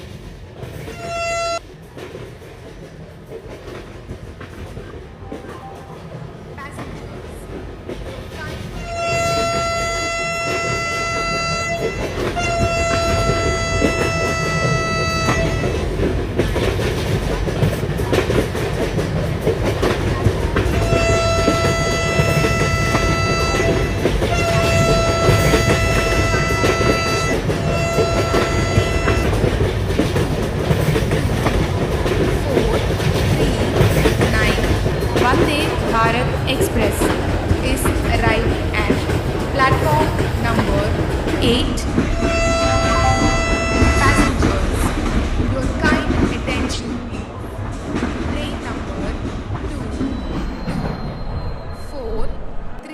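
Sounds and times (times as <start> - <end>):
train wheels clattering over rails: 0.0 - 51.8
train horn blasts: 0.9 - 1.6, 8.8 - 16.1, 20.7 - 29.7, 41.4 - 44.8.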